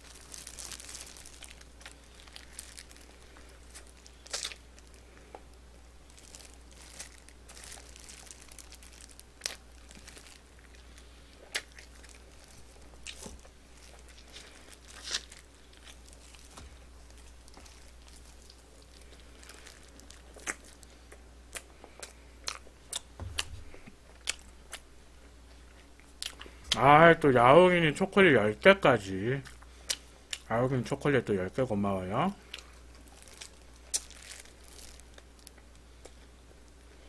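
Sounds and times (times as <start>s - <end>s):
plastic glove crinkles: 0.0s - 21.1s, 32.4s - 37.0s
crunching and chewing: 0.0s - 26.8s, 29.4s - 30.5s, 32.4s - 37.0s.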